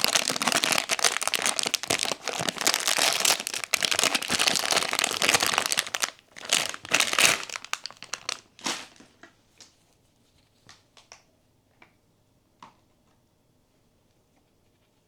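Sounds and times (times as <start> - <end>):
plastic wrapping crinkling: 0.0 - 9.3.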